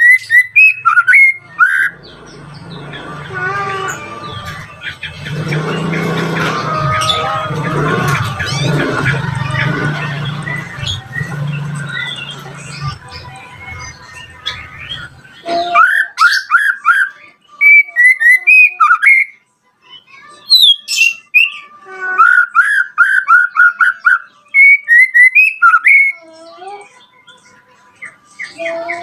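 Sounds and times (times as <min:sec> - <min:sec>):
bird singing whistled notes: 0:00.0 - 0:02.2, 0:14.0 - 0:19.4, 0:20.5 - 0:26.2
low rumbling noise: 0:01.9 - 0:15.4.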